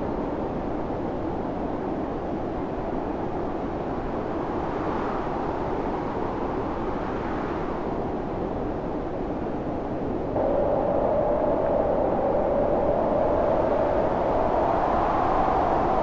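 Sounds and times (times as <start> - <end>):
storm wind rushing: 10.3 - 16.0.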